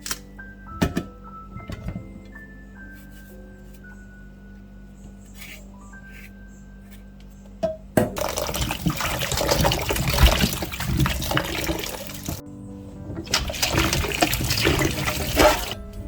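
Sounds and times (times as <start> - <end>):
tap water running and splashing: 8.2 - 12.4, 13.2 - 15.8.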